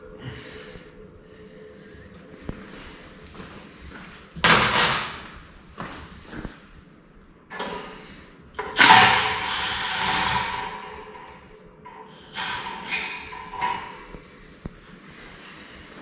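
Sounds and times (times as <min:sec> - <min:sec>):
metal guard scraping and rattling: 0:04.2 - 0:05.3, 0:08.6 - 0:14.1.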